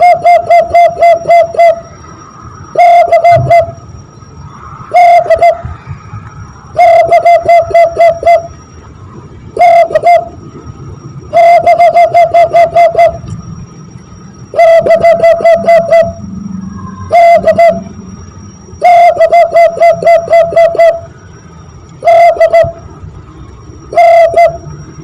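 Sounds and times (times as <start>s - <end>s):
cupped hands whistle cooing: 0.0s - 2.1s, 2.7s - 6.0s, 6.6s - 8.6s, 9.6s - 10.4s, 11.2s - 13.4s, 14.5s - 21.2s, 21.9s - 23.0s, 23.8s - 25.0s.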